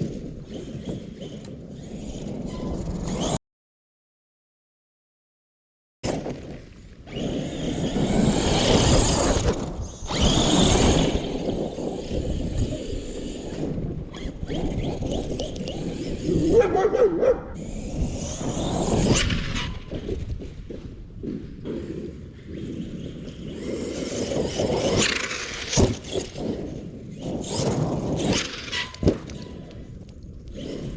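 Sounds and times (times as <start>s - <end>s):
electric toy truck motor: 7.1s - 16.6s, 17.6s - 20.0s.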